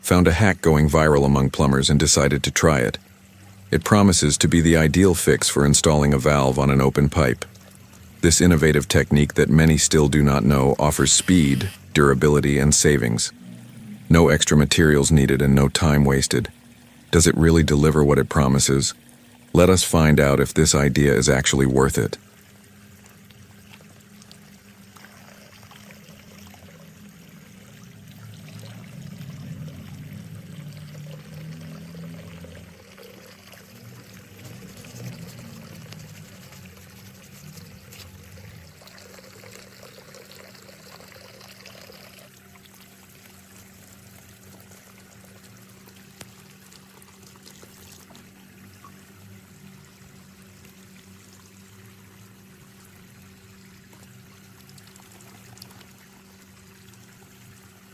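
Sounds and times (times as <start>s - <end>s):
low hum: 0.0s - 23.4s, 24.0s - 40.6s
water pouring from a pipe: 0.0s - 57.9s.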